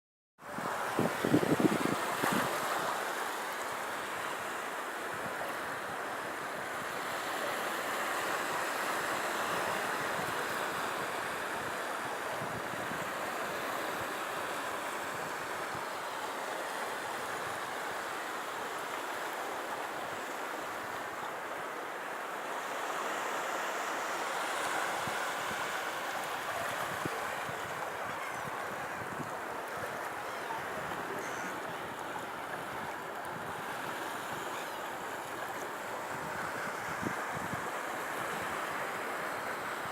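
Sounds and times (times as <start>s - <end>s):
surf washing onto a beach: 0.4s - 39.9s
wind: 0.4s - 39.9s.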